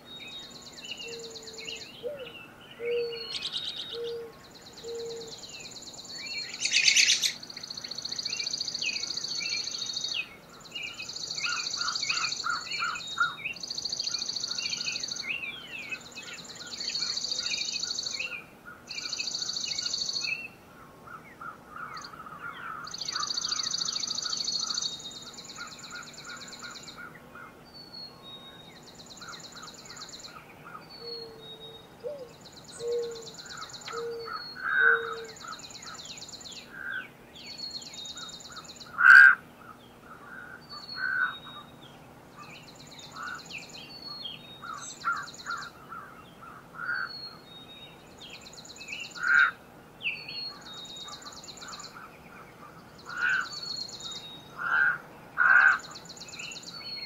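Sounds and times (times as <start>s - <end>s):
birds singing: 0.0s - 57.0s
high dry bird trills: 2.8s - 10.1s, 28.8s - 37.0s, 37.8s - 41.8s.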